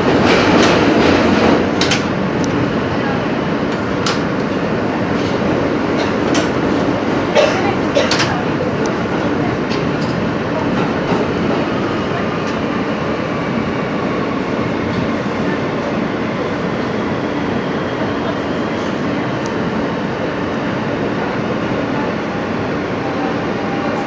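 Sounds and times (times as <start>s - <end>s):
train wheels rumbling on rails: 0.0s - 24.0s
track joint clicks: 0.3s - 2.6s, 3.7s - 6.9s.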